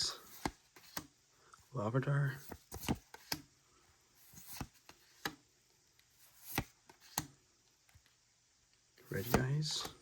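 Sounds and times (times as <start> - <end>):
cards shuffling: 0.0 - 1.2, 2.2 - 3.5, 4.2 - 8.1, 9.0 - 10.0.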